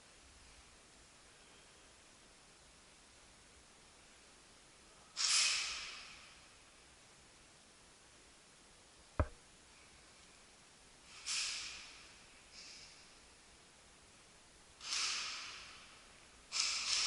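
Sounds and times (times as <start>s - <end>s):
soft knock: 9.2s - 9.4s.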